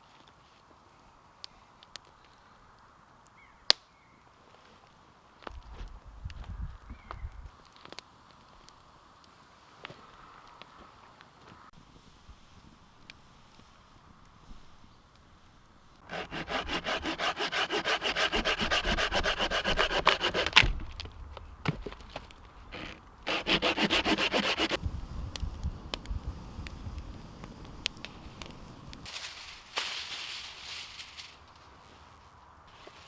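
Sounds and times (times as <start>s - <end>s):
hand saw cutting wood: 16.1s - 20.7s, 22.8s - 24.8s.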